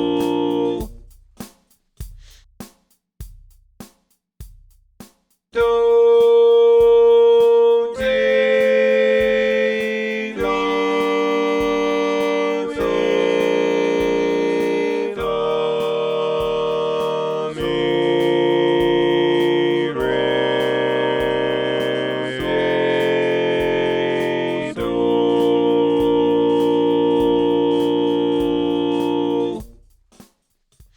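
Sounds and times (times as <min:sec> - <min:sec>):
sustained harmony chords: 0:00.0 - 0:00.8, 0:05.9 - 0:29.6
low click beat: 0:00.0 - 0:02.4, 0:05.6 - 0:30.9.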